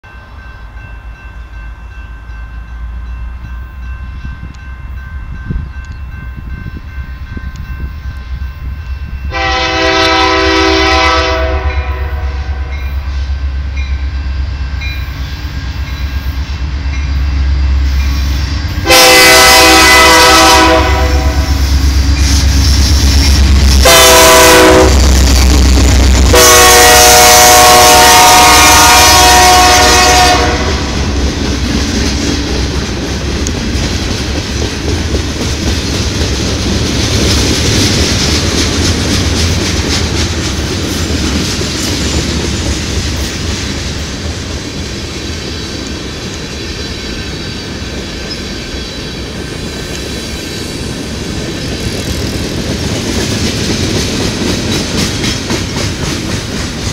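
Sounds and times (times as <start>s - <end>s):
freight train rolling past: 0.0s - 56.9s
train horn blasts: 9.3s - 13.5s, 18.8s - 22.7s, 23.3s - 25.2s, 26.2s - 31.2s
wheels clacking over rail joints: 30.9s - 56.9s.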